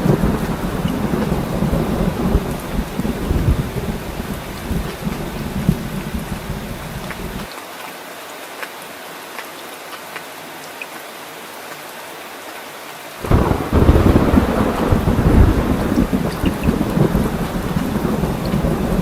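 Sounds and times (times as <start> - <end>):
loud thunderclap: 0.0 - 7.5, 13.2 - 19.0
thunder rumbling: 0.0 - 7.5, 13.2 - 19.0
steady rain falling: 0.0 - 19.0
water drips: 13.2 - 19.0.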